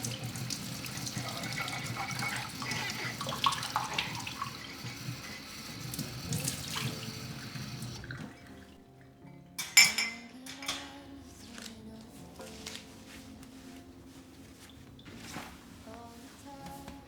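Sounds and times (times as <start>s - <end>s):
tap water running into sink: 0.0s - 8.8s.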